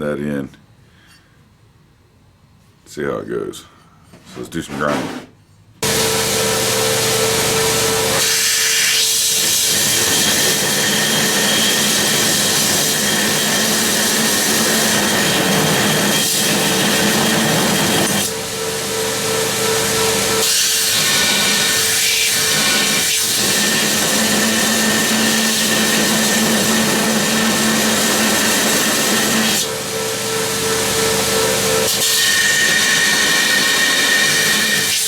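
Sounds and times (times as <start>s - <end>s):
grinder grinding steel: 4.4s - 18.3s, 19.8s - 29.7s, 31.0s - 35.0s
motor whine: 5.8s - 8.5s.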